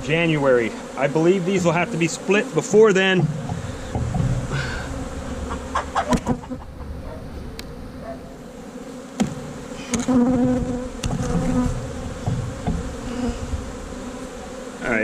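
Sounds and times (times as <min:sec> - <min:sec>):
honey bees buzzing: 0:00.0 - 0:15.0
sharp knocks: 0:03.1 - 0:04.7, 0:09.2 - 0:12.9.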